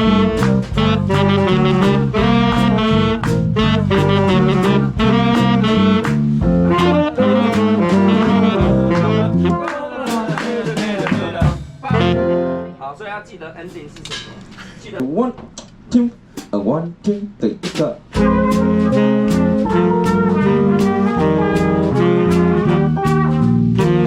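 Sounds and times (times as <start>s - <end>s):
saxophones: 0.0s - 10.0s, 11.9s - 12.8s, 18.2s - 24.0s
steady drum beat: 0.0s - 12.4s, 15.3s - 24.0s
swing jazz band playing: 0.0s - 12.8s, 15.9s - 24.0s.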